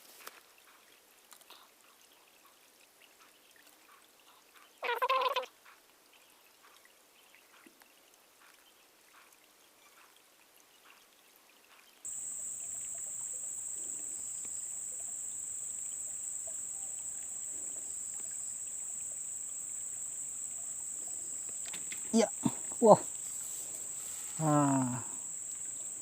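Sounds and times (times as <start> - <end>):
faint small ticks: 0.2 - 1.8, 11.7 - 24.0
insects droning: 12.1 - 26.0
water sounds: 12.1 - 26.0.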